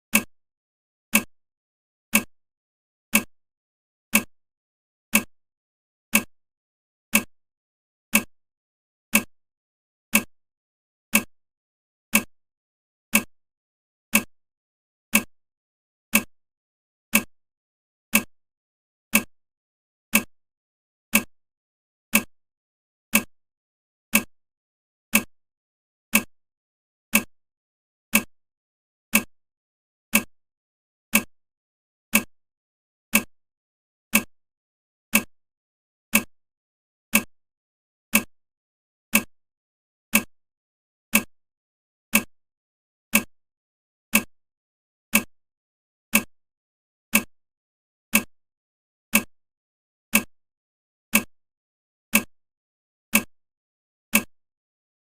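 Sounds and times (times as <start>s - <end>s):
clock ticking: 0.1s - 0.3s, 1.1s - 1.3s, 2.1s - 2.3s, 3.1s - 3.3s, 4.1s - 4.3s, 5.1s - 5.3s, 6.1s - 6.3s, 7.1s - 7.3s, 8.1s - 8.3s, 9.1s - 9.3s, 10.1s - 10.3s, 11.1s - 11.3s, 12.1s - 12.3s, 13.1s - 13.3s, 14.1s - 14.3s, 15.1s - 15.3s, 16.1s - 16.3s, 17.1s - 17.3s, 18.1s - 18.3s, 19.1s - 19.3s, 20.1s - 20.3s, 21.1s - 21.3s, 22.1s - 22.3s, 23.1s - 23.3s, 24.1s - 24.3s, 25.1s - 25.3s, 26.1s - 26.3s, 27.1s - 27.3s, 28.1s - 28.3s, 29.1s - 29.3s, 30.1s - 30.3s, 31.1s - 31.3s, 32.1s - 32.3s, 33.1s - 33.3s, 34.1s - 34.3s, 35.1s - 35.3s, 36.1s - 36.3s, 37.1s - 37.3s, 38.1s - 38.3s, 39.1s - 39.3s, 40.1s - 40.3s, 41.1s - 41.3s, 42.1s - 42.3s, 43.1s - 43.3s, 44.1s - 44.3s, 45.1s - 45.3s, 46.1s - 46.3s, 47.1s - 47.3s, 48.1s - 48.3s, 49.1s - 49.3s, 50.1s - 50.3s, 51.1s - 51.3s, 52.1s - 52.3s, 53.1s - 53.3s, 54.1s - 54.3s.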